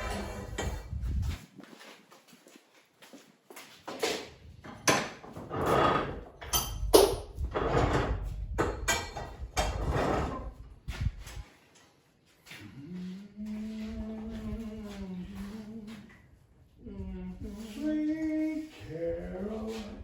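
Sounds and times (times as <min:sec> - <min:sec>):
knocks and clatters: 0:03.9 - 0:10.5.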